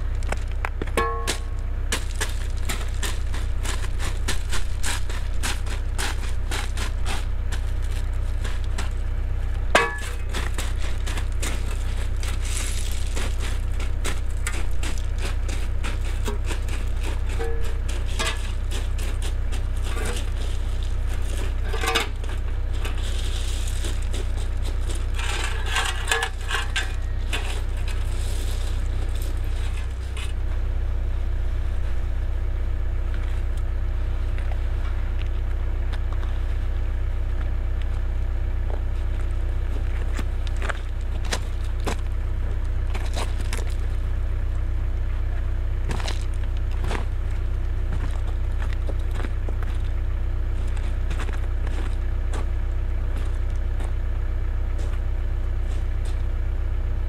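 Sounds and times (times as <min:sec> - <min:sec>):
bucket scraping stone and soil: 0:00.0 - 0:30.5
excavator diesel engine running: 0:00.0 - 0:57.0.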